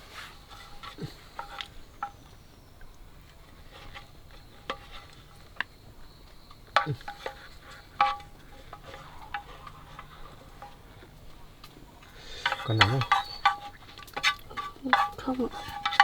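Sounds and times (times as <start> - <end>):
faint steady hiss: 0.0 - 16.0
utensils clinking against dishes: 12.2 - 16.0.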